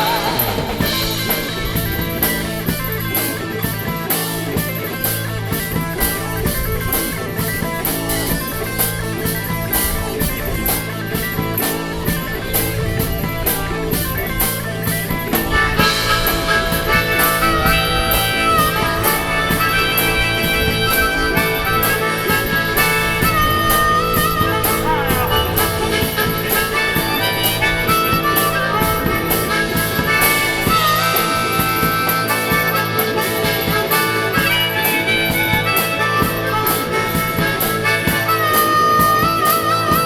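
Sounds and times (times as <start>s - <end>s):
lead melody of bending notes: 0.0s - 40.0s
rock band playing: 0.0s - 40.0s.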